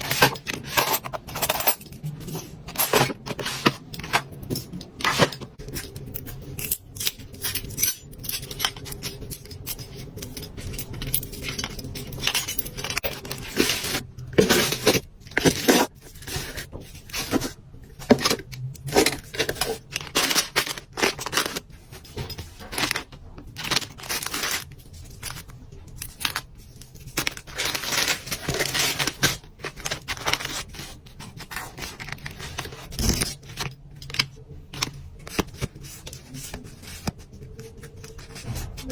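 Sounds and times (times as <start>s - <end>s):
packaging scraping: 8.4s - 38.9s
packaging rustling: 8.5s - 38.9s.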